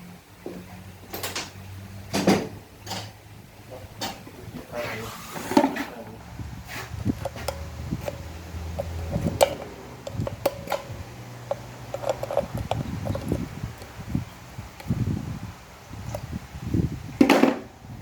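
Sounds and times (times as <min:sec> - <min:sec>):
metallic clicks of hand tools: 0:07.2 - 0:14.0.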